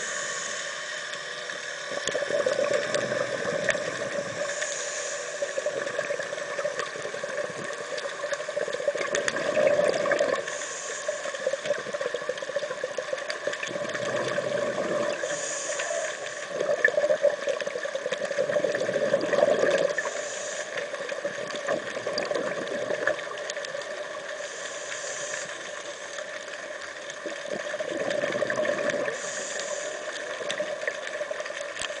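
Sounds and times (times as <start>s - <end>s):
regulator inhalation hiss: 0.0s - 12.7s, 15.0s - 18.4s, 19.8s - 21.7s, 24.1s - 26.6s, 28.9s - 30.9s
steady hum: 0.0s - 23.0s
exhaled bubbles gurgling: 1.5s - 32.0s.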